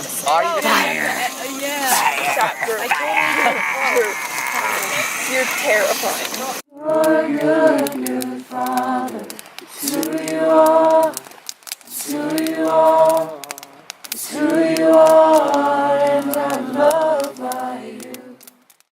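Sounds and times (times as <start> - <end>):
choir singing without instruments: 1.8 - 11.3, 11.9 - 18.4.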